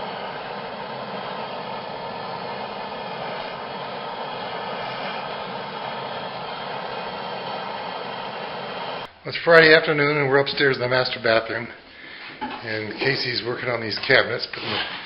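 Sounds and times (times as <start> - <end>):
torch flame hissing: 0.0 - 9.1.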